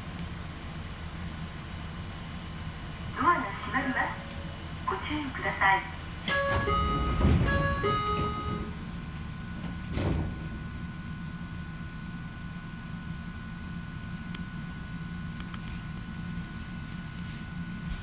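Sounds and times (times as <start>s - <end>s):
train railcar rumble: 0.0s - 14.0s.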